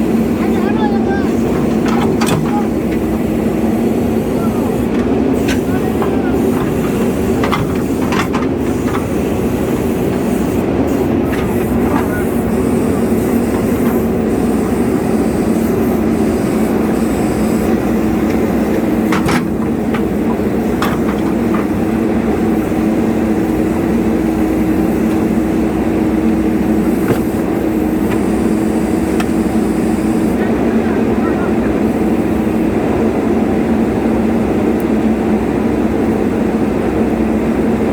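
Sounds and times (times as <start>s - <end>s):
heavy diesel engine running: 0.0s - 37.9s
short clanks and knocks: 1.4s - 3.1s, 4.9s - 9.1s, 18.2s - 21.8s.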